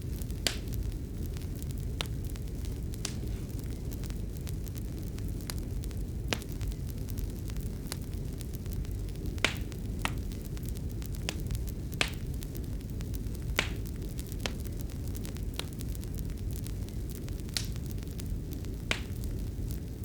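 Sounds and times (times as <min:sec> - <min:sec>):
fireplace fire crackling and popping: 0:00.0 - 0:20.0.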